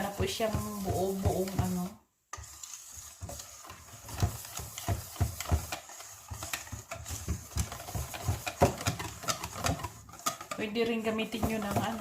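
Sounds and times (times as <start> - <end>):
utensil scraping batter: 0.0 - 12.0
utensil knocking against bowl: 4.2 - 10.6.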